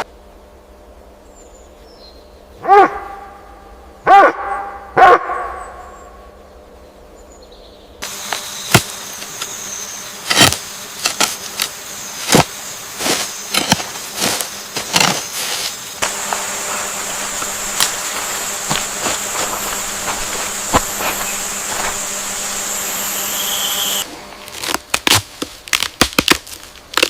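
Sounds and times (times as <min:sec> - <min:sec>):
high insect buzz: 0:04.9 - 0:27.0
steady hiss: 0:08.0 - 0:24.1.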